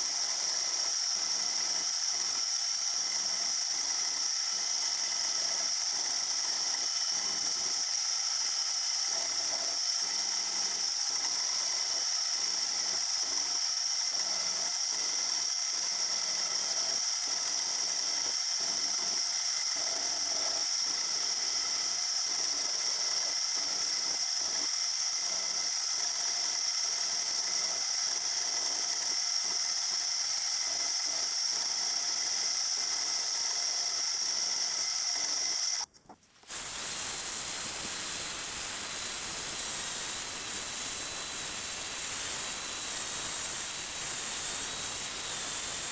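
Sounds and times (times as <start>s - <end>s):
machine tool whining: 34.0s - 45.9s.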